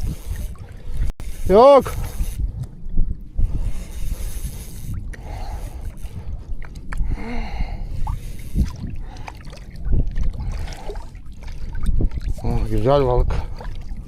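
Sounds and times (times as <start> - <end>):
water sloshing: 3.8 - 7.1, 7.9 - 14.0.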